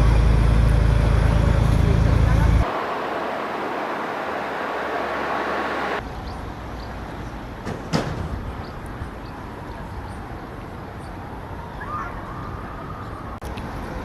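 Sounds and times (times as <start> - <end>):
even hum: 0.0 - 6.0
outdoor background noise: 0.0 - 14.0.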